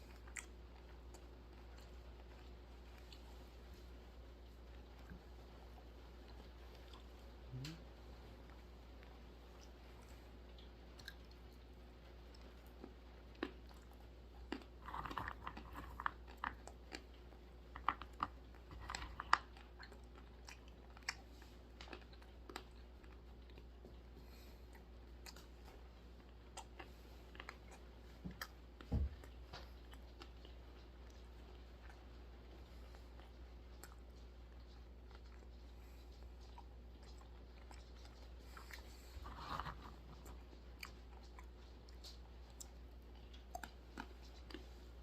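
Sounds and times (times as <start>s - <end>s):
almonds crunching: 12.8s - 23.7s.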